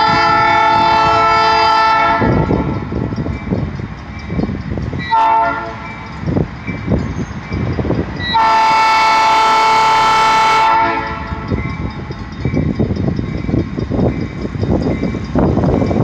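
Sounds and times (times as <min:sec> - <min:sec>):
locomotive air horn blasts: 0:00.0 - 0:02.5, 0:05.1 - 0:05.8, 0:08.3 - 0:11.5
train rumbling and knocking: 0:00.0 - 0:16.0.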